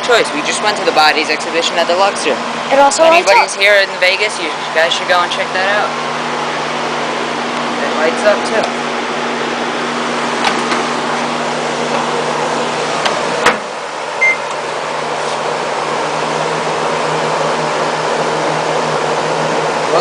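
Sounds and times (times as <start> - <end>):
air conditioner drone: 0.0 - 20.0
microwave oven humming: 0.0 - 20.0
keypad beep: 14.2 - 14.5.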